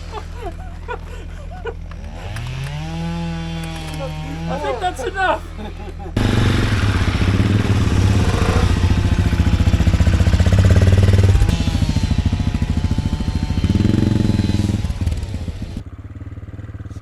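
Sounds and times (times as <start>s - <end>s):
motorcycle engine running: 6.1s - 17.0s.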